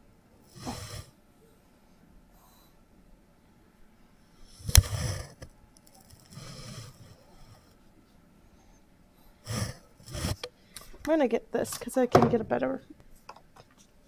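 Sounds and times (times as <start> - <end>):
pencil scraping on paper: 4.7 - 5.4, 9.4 - 10.5.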